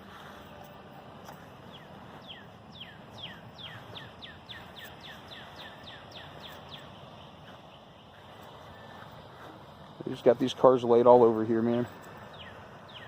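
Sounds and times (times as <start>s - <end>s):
outdoor background noise: 0.0s - 13.0s
songbird whistling song: 1.2s - 9.2s, 12.2s - 13.0s.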